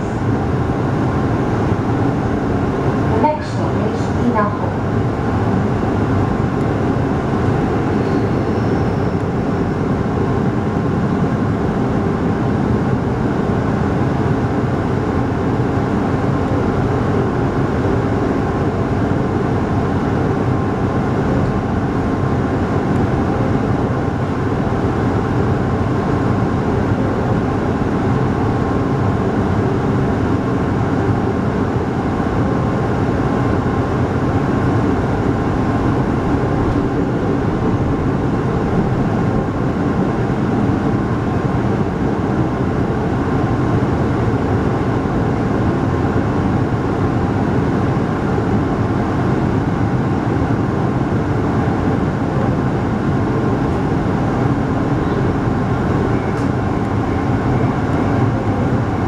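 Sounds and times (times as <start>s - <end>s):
train wheels rumbling on rails: 22.2s - 44.6s, 51.6s - 59.0s.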